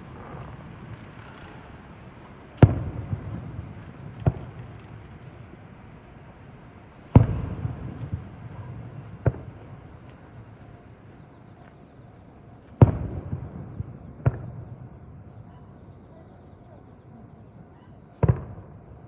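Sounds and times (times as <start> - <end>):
fireworks booming: 0.0 - 11.1, 12.5 - 15.3, 18.2 - 19.0
sharp firework bangs: 7.1 - 10.5.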